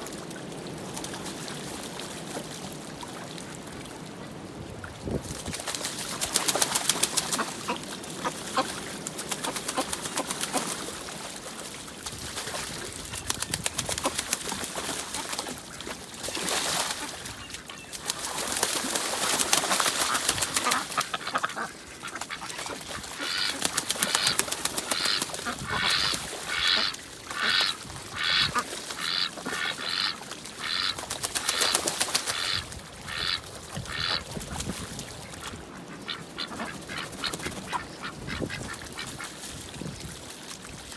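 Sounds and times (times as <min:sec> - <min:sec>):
splashing water: 0:00.0 - 0:40.9
ducks quacking: 0:06.8 - 0:10.7, 0:19.5 - 0:34.6, 0:35.2 - 0:39.4.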